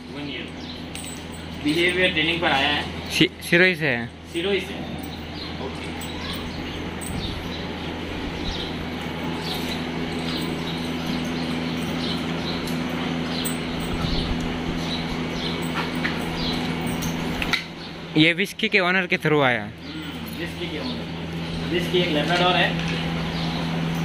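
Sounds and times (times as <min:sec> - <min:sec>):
steady low hum: 0:00.0 - 0:24.0
small birds chirping: 0:00.1 - 0:03.3, 0:04.2 - 0:18.8, 0:19.8 - 0:24.0.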